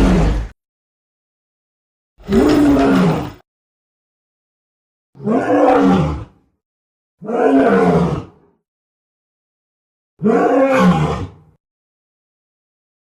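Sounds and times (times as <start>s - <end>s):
lion roaring: 0.0s - 0.6s, 2.2s - 3.4s, 5.2s - 6.4s, 7.2s - 8.4s, 10.2s - 11.5s.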